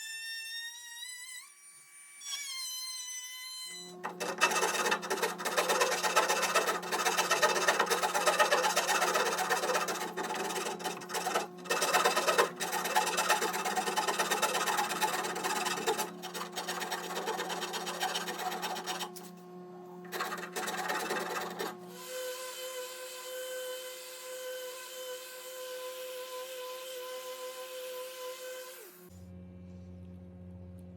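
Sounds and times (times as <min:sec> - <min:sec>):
wood rasp scraping wood: 0:04.0 - 0:19.3, 0:20.1 - 0:21.9.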